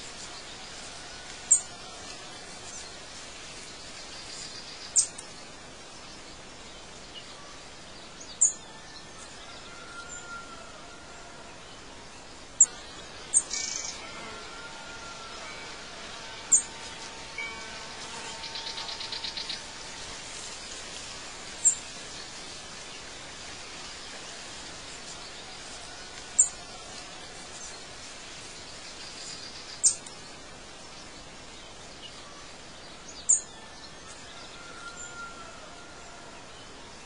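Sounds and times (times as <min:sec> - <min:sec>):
steady background hiss: 0:00.0 - 0:37.0
bird trill: 0:16.4 - 0:16.8.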